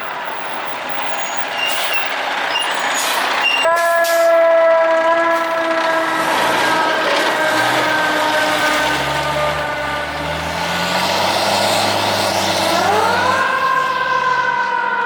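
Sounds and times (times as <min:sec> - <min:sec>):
moving truck noise: 0:00.0 - 0:15.0
fire truck air horn: 0:03.5 - 0:11.1.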